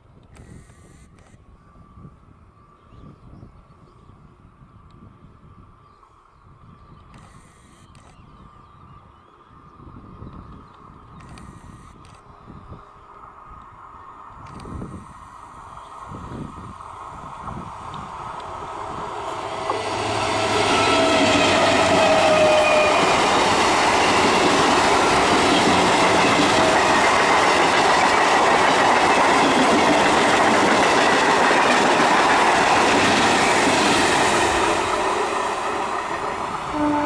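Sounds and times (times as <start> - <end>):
train passing at speed: 12.8 - 37.0.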